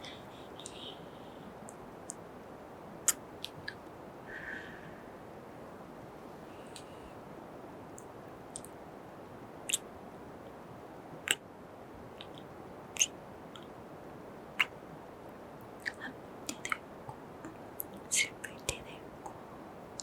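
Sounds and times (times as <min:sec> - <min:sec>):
mouth clicks: 0:00.0 - 0:02.2, 0:03.0 - 0:03.9, 0:08.0 - 0:08.8, 0:09.6 - 0:09.9, 0:11.2 - 0:11.4, 0:12.2 - 0:13.7, 0:14.6 - 0:14.8, 0:15.8 - 0:19.4
steady hiss: 0:00.0 - 0:20.0.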